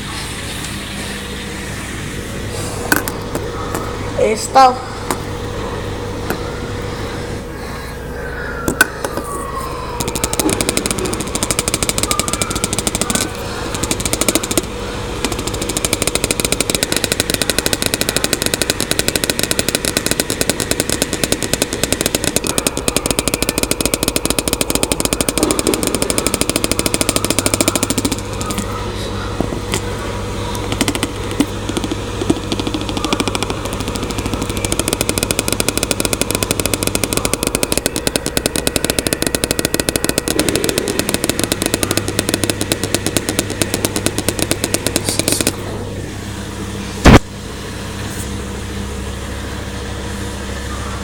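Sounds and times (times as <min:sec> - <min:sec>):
washing machine spinning: 0:00.0 - 0:51.0
fast loud rattle: 0:10.0 - 0:28.8, 0:29.4 - 0:45.6.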